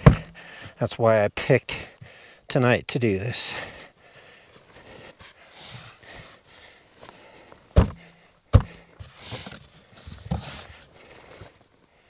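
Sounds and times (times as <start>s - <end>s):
heavy thuds on wooden panels: 0.0s - 0.4s, 7.8s - 9.0s
shuffling and crunching: 4.5s - 11.8s.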